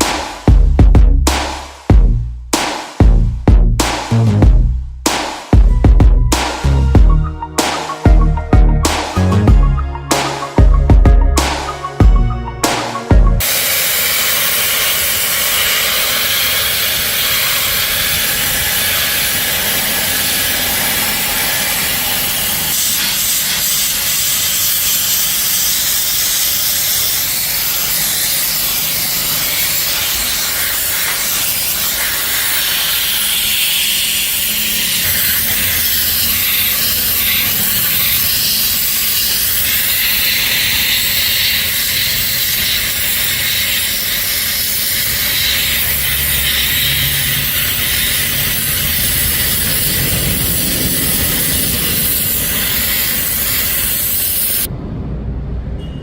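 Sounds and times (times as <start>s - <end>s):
spray or air jet hissing: 0.0s - 0.7s, 12.6s - 54.7s.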